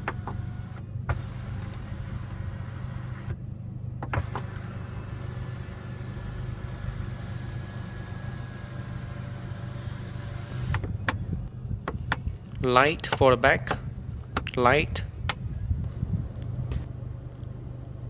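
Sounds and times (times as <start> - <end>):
electric roof motor whining: 0.0 - 11.5
low cabin hum: 0.0 - 18.0.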